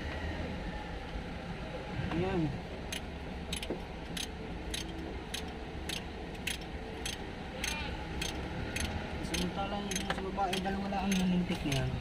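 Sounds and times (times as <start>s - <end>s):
sharp ticks: 2.9s - 12.0s.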